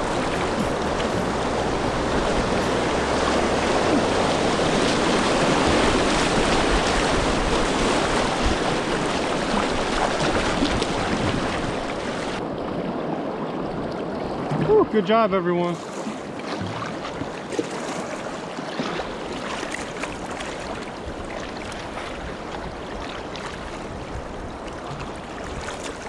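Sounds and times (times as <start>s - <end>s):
rushing whitewater: 0.0s - 12.4s.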